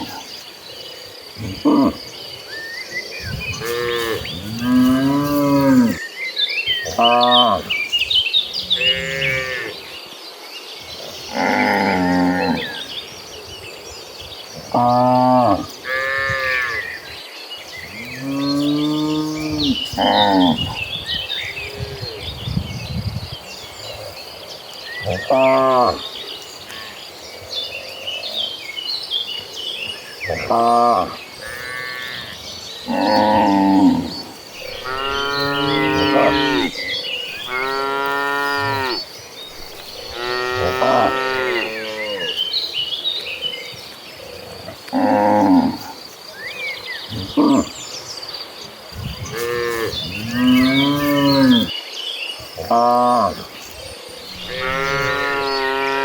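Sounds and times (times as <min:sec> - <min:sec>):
bird chirps: 0:00.0 - 0:56.0
cattle mooing: 0:03.6 - 0:06.0, 0:32.9 - 0:39.0, 0:39.7 - 0:42.4, 0:54.4 - 0:56.0.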